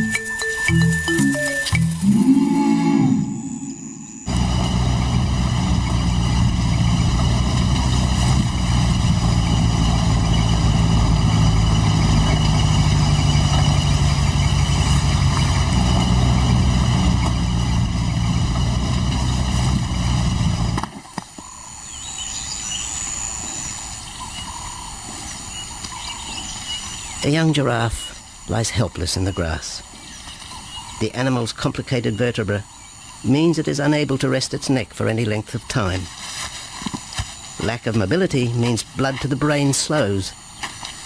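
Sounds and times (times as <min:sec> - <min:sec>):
faint high chirps: 0:00.0 - 0:04.7
vehicle engine idling: 0:04.2 - 0:20.8.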